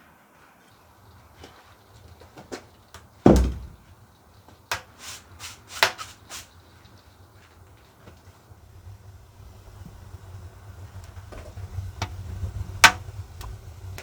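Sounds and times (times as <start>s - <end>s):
heavy thump: 3.2s - 3.8s.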